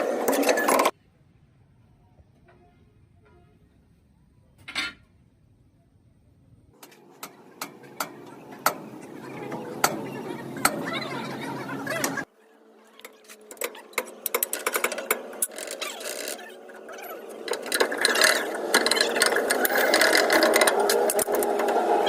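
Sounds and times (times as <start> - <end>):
steady mechanical running: 13.0 - 22.0.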